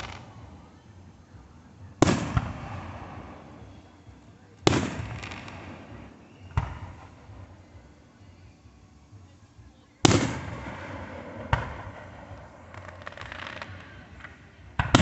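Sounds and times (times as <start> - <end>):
firework booms with rumble: 2.0 - 3.7, 4.6 - 7.5, 10.0 - 14.2, 14.8 - 15.0.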